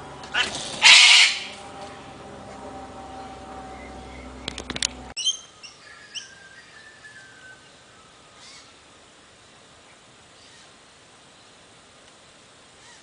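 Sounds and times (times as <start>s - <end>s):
background hum: 0.0s - 13.0s
sharp clicks: 4.4s - 5.0s.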